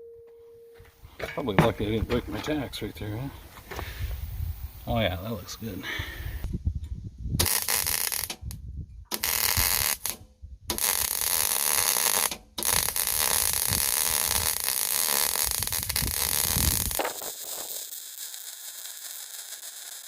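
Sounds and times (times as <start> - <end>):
welding arc crackling: 7.4 - 20.0.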